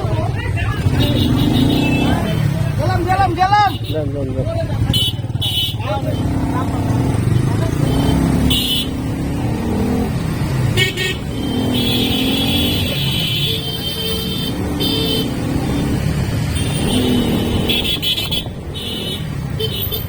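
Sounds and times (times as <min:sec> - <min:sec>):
motorcycle engine running: 0:00.0 - 0:20.0
road traffic: 0:00.0 - 0:20.0
vehicle horn toots: 0:00.8 - 0:02.4, 0:04.9 - 0:06.4, 0:07.7 - 0:09.1, 0:10.7 - 0:15.8, 0:16.5 - 0:20.0.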